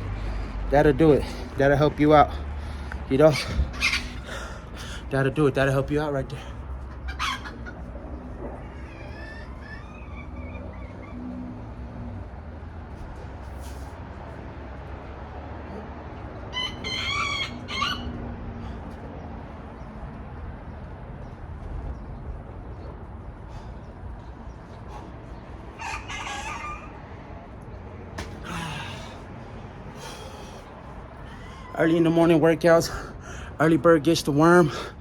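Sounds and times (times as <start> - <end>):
rooster crowing: 16.5 - 18.7, 25.8 - 27.0.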